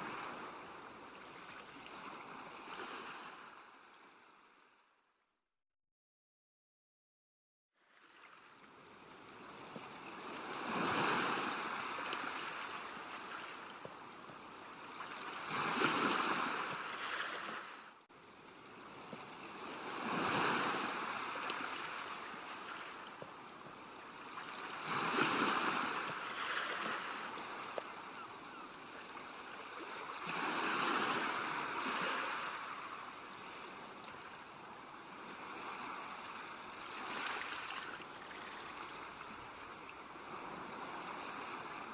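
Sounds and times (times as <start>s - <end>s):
sea waves breaking on shore: 0.0s - 4.7s, 7.8s - 41.9s.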